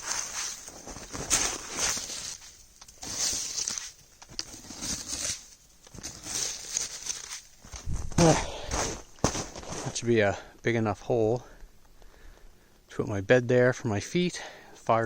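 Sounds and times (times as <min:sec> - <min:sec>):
snowshoe scraping and crunching snow: 0:00.0 - 0:10.1.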